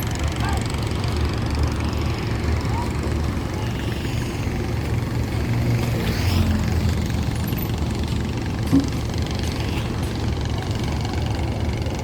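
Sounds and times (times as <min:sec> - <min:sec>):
engines rumbling: 0:00.0 - 0:12.0.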